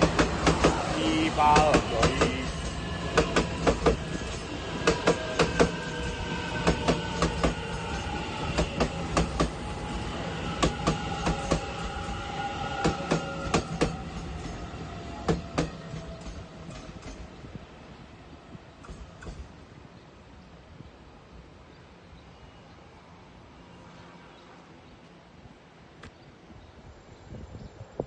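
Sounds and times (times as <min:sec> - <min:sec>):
train wheels clicking over rail joints: 0:00.0 - 0:09.6, 0:15.2 - 0:17.4, 0:18.8 - 0:19.6.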